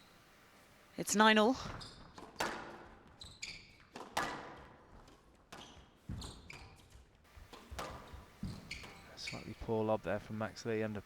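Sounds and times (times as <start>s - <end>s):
squash ball hitting rackets and walls: 1.6s - 9.5s
shoes squeaking on court floor: 1.6s - 9.9s.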